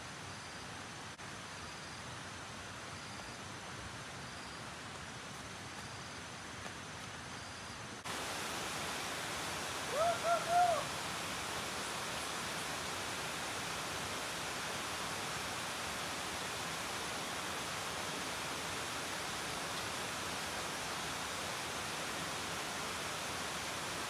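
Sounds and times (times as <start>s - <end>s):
outdoor hiss: 0.0s - 24.0s
bird hooting: 9.9s - 10.9s.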